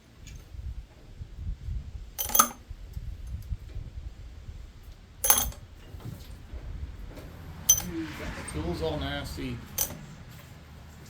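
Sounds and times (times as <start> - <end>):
metal parts clinking: 0.2 - 0.5, 2.2 - 2.7, 5.2 - 5.9, 7.7 - 8.0, 9.7 - 10.2.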